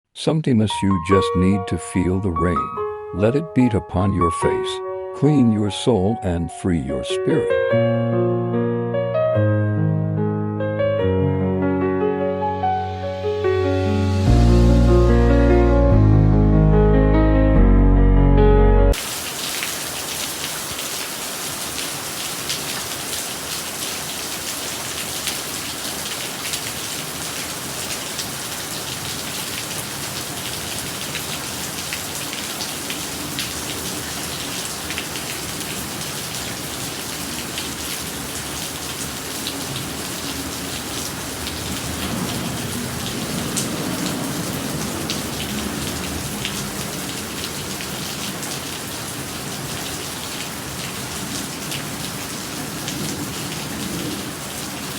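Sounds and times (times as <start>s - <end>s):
rain pattering: 19.0s - 54.9s.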